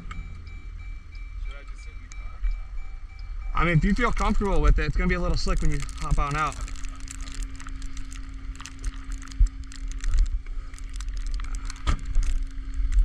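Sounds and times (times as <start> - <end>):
vehicle engine idling: 0.0 - 13.0
wind rumbling on microphone: 3.8 - 13.0.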